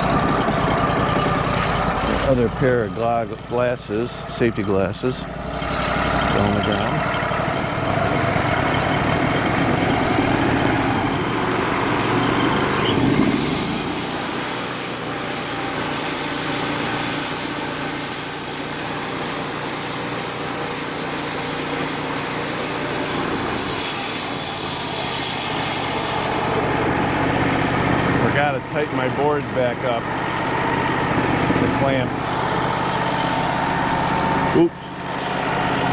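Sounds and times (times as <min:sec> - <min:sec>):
sawmill engine idling and revving: 0:00.0 - 0:35.9
band saw blade hissing: 0:10.8 - 0:26.9.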